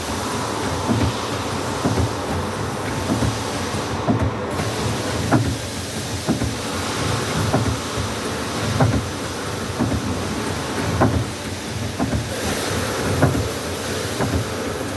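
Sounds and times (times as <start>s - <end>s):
lathe turret clunking: 0.0s - 14.9s.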